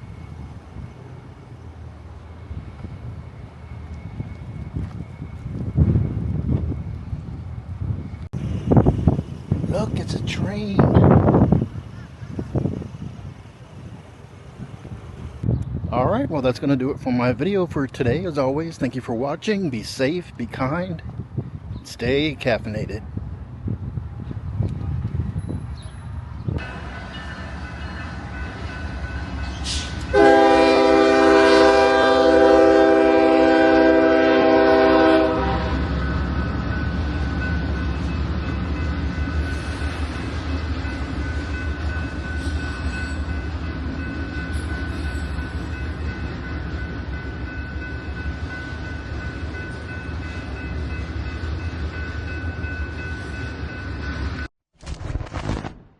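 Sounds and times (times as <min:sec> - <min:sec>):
train rumble: 0:00.0 - 0:54.5
train horn blast: 0:30.1 - 0:35.9.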